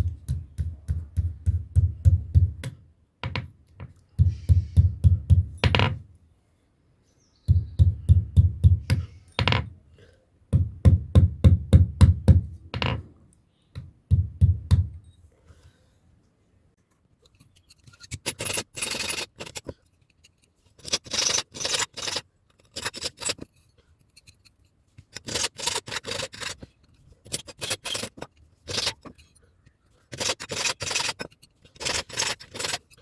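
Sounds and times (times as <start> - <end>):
metal rasping strokes: 17.4 - 29.4, 30.0 - 33.0.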